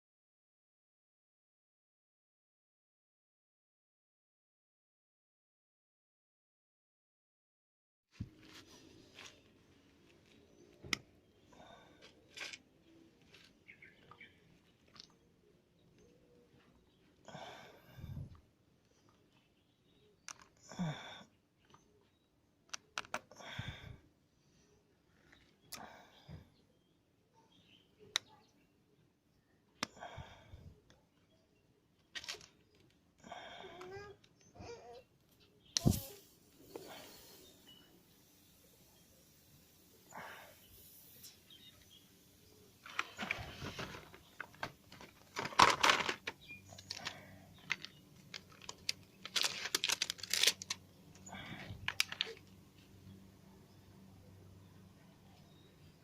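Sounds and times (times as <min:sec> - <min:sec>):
packaging rustling: 0:42.8 - 0:50.8, 0:51.8 - 0:52.4.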